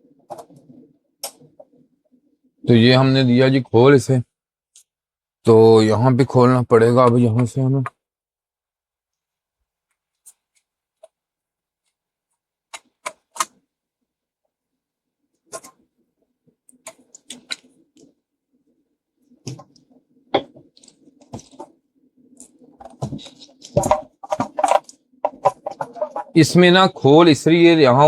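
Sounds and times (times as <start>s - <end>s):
plastic parts rattling: 20.4s - 26.4s.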